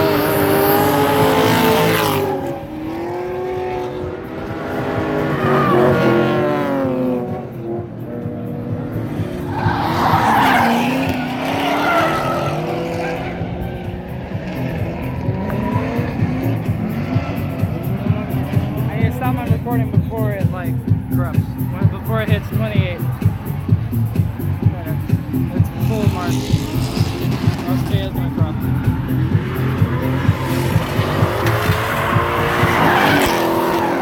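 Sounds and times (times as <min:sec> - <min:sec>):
car engines revving: 0:00.0 - 0:34.0
tyres squealing: 0:09.4 - 0:13.5.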